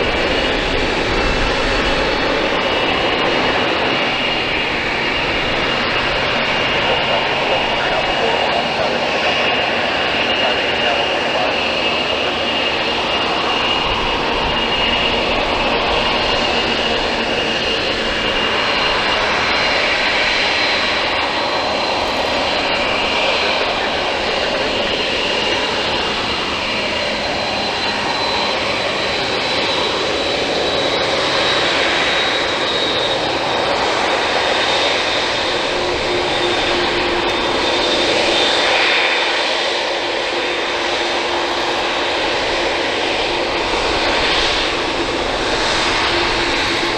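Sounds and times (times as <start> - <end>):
jet engines whining: 0.0 - 46.9.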